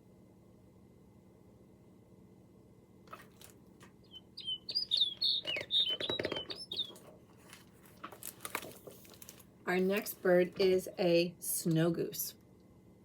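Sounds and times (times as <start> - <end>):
recorded bird chirping: 3.9 - 7.2.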